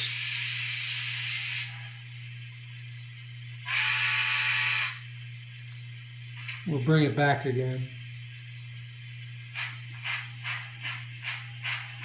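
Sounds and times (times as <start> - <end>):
steam hiss: 0.0 - 1.9
steady low hum: 0.0 - 12.0.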